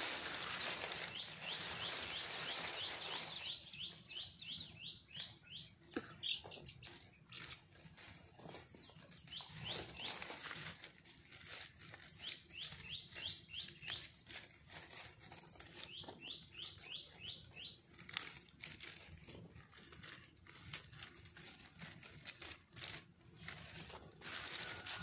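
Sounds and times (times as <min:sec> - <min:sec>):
steady high hiss: 0:00.0 - 0:03.7
rustling and crackling: 0:00.0 - 0:25.0
bird chirping: 0:00.5 - 0:10.3, 0:12.2 - 0:14.4, 0:15.2 - 0:17.9.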